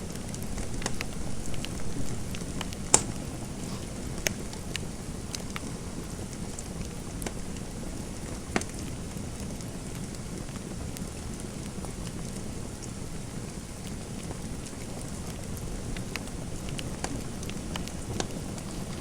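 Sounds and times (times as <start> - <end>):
fireplace fire crackling: 0.0 - 19.0
sharp pops of fire: 0.1 - 7.5, 8.2 - 8.9.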